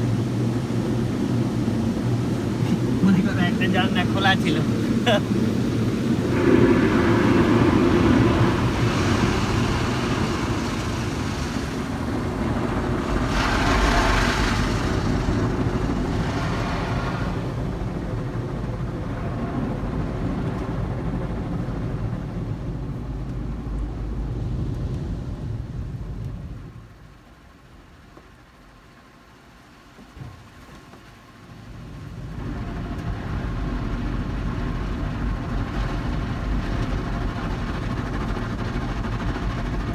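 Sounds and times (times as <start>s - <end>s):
car wash spray and machinery: 0.0s - 39.9s.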